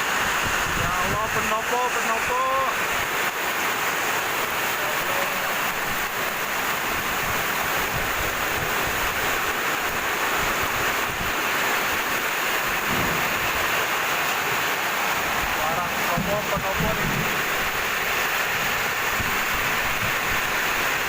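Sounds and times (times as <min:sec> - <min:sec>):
heavy rain pouring: 0:00.0 - 0:21.0
wind rumbling on microphone: 0:00.2 - 0:01.5, 0:05.6 - 0:13.8, 0:15.3 - 0:21.0.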